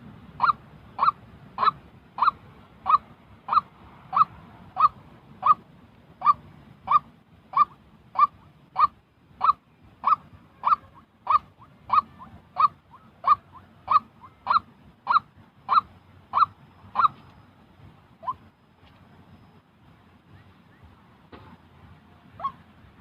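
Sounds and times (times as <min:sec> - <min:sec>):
waterhen calling: 0:00.4 - 0:05.6, 0:06.2 - 0:17.3, 0:18.2 - 0:18.5, 0:22.3 - 0:22.7.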